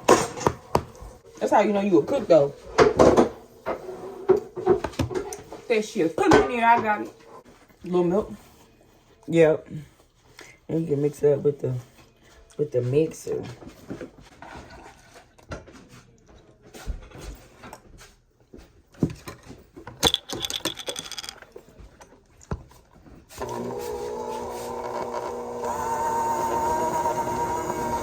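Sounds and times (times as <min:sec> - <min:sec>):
electric hand mixer whine: 0:23.4 - 0:28.0.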